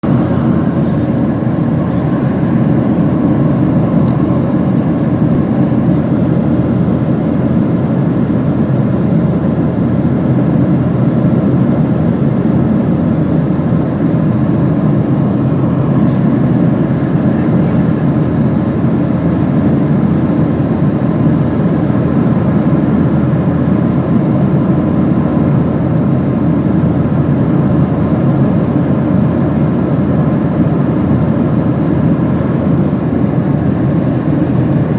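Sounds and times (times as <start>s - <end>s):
airplane cabin engine rumble: 0.0s - 34.9s
faint steady whine: 0.0s - 34.9s.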